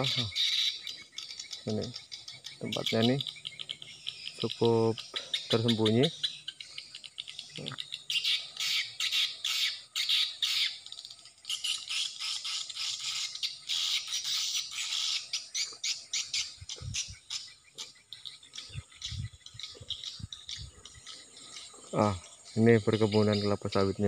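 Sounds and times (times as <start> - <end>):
swiftlet twittering chirps: 0.0 - 24.0.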